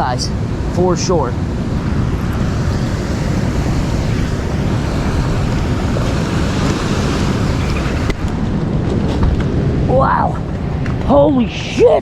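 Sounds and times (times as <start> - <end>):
water roaring through dam spillway: 0.1 - 8.5.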